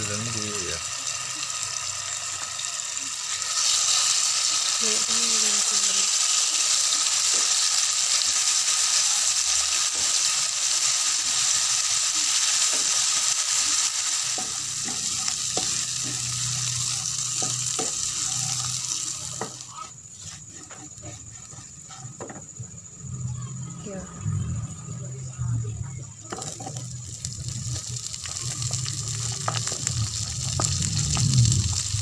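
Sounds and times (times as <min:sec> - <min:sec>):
spice paste sizzling in oil: 0:00.0 - 0:23.4, 0:26.2 - 0:32.0
spatula scraping and tapping pan: 0:14.4 - 0:22.5.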